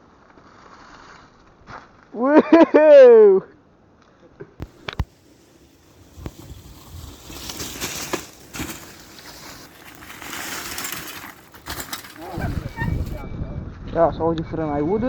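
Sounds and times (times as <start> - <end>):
bike crunching through snow: 4.6 - 13.2.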